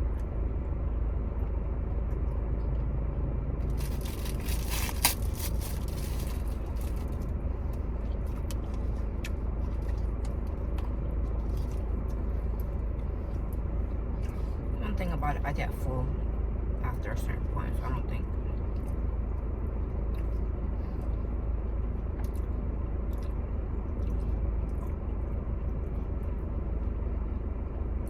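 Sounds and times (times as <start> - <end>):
steady low hum: 0.0 - 28.0
crinkling rustle: 3.6 - 7.3
chewing clicks: 22.2 - 25.0.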